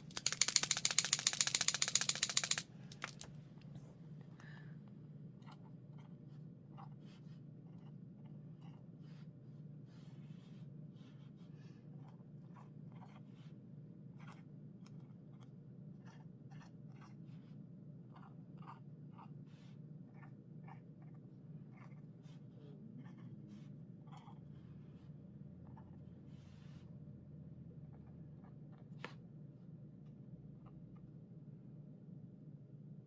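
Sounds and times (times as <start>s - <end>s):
pen tapping and scratching paper: 0.0s - 3.3s.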